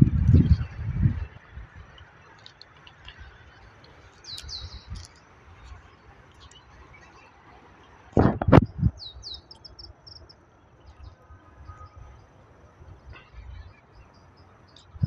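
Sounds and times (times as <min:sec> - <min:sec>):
songbird chirping: 0:00.3 - 0:08.1, 0:08.8 - 0:15.0.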